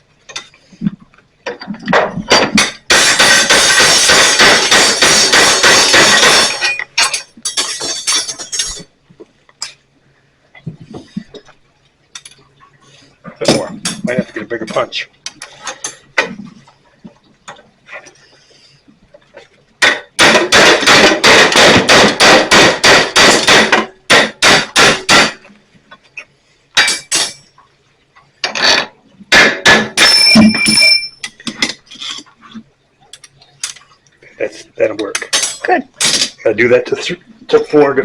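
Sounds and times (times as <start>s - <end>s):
hammer striking steel punch: 19.8s - 25.4s.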